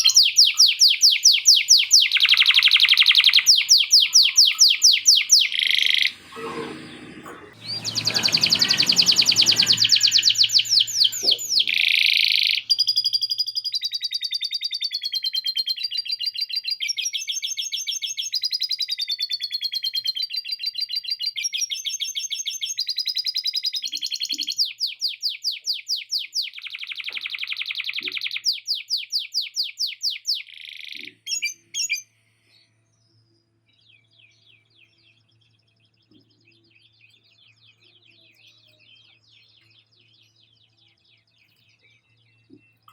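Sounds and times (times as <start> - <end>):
bird chattering: 0.0 - 13.3
canary singing trills: 0.0 - 42.9.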